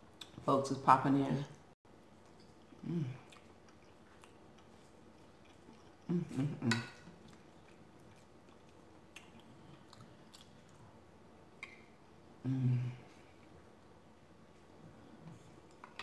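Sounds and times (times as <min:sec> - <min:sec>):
person chewing: 0:02.1 - 0:12.0
short hummed vocal sound: 0:02.8 - 0:03.3, 0:06.1 - 0:07.0, 0:12.4 - 0:13.3.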